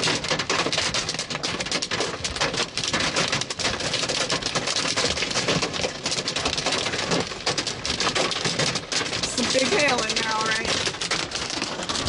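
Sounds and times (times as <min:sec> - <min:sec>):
hail clattering with rain: 0:00.0 - 0:12.0
person speaking: 0:09.3 - 0:10.7.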